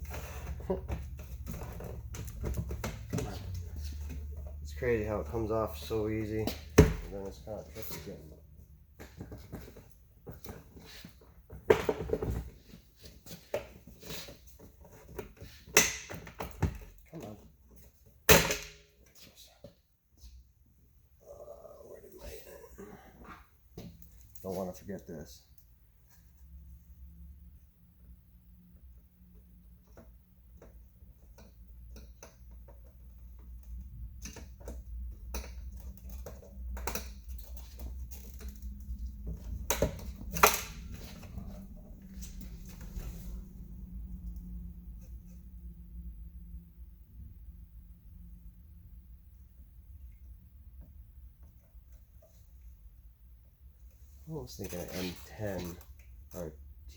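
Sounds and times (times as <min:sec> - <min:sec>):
steady low hum: 0:33.2 - 0:54.0.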